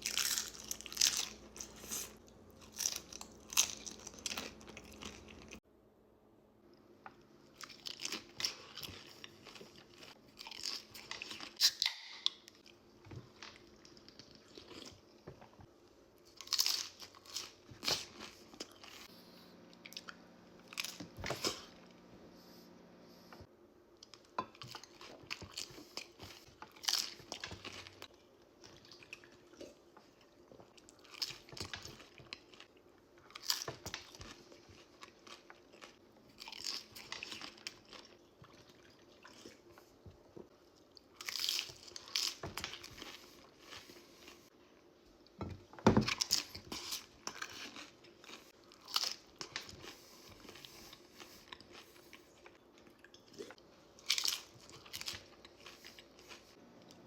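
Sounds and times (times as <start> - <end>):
crunching tortilla chips: 0.0 - 5.6, 16.3 - 19.0, 31.0 - 39.4, 41.0 - 44.0, 46.2 - 52.5.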